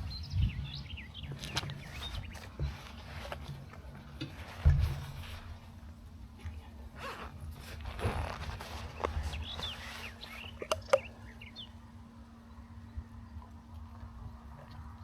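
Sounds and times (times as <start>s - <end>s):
wind and road rumble: 0.0s - 11.8s
bird chirps: 9.0s - 11.8s.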